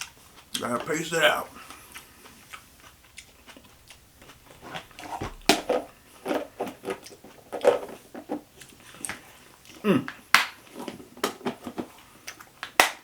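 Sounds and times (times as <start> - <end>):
man chewing food: 0.0 - 11.1.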